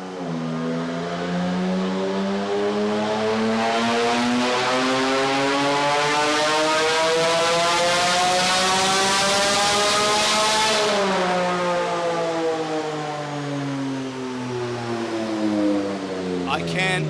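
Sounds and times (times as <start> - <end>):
car engine revving on a dyno: 0.1 - 13.3.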